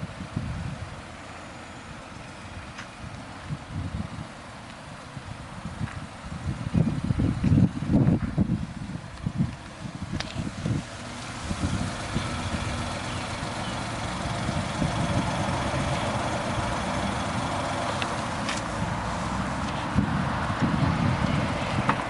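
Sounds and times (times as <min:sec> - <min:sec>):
truck engine idling: 0:09.6 - 0:21.1.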